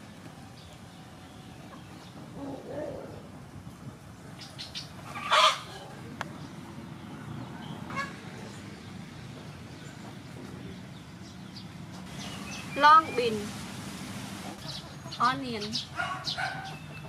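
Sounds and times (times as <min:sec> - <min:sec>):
bird squawking: 0:04.5 - 0:06.0.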